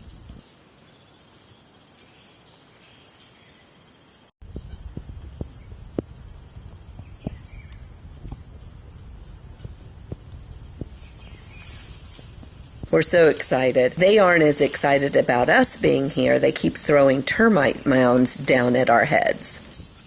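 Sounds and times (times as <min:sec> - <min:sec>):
low rumble: 0:04.4 - 0:17.9.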